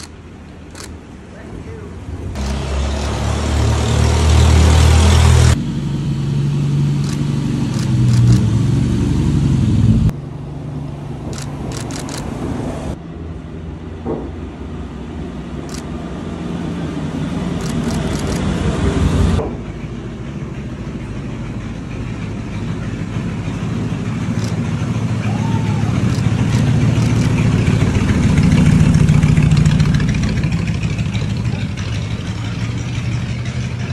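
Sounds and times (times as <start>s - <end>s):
old car engines at low speed: 0.0s - 33.9s.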